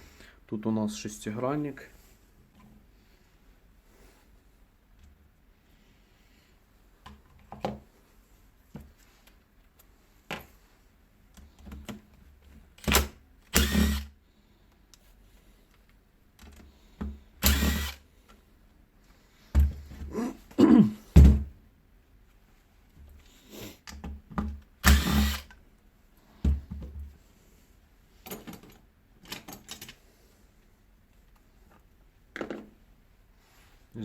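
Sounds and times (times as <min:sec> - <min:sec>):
cordless screwdriver whirring: 0:13.5 - 0:14.1, 0:17.4 - 0:18.0, 0:24.8 - 0:25.5
tools and metal parts clicking: 0:28.2 - 0:30.0.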